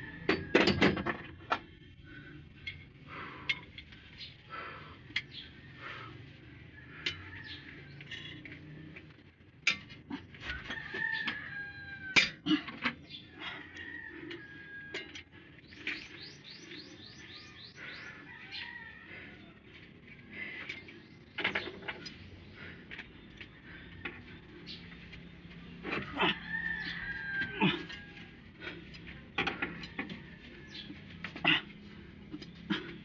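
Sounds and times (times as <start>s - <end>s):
rooster crowing: 0.0s - 0.8s, 10.4s - 12.4s, 13.4s - 15.2s, 18.2s - 19.6s, 25.9s - 28.8s, 29.7s - 31.1s.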